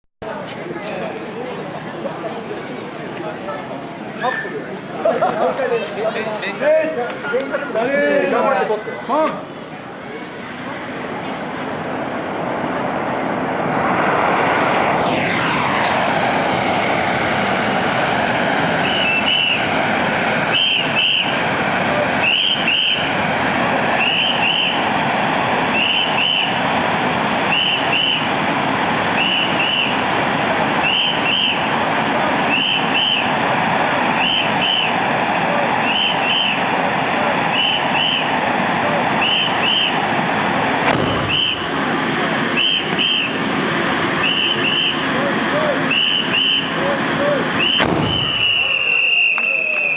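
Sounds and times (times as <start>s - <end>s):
firework spraying sparks hissing: 13.5s - 49.9s.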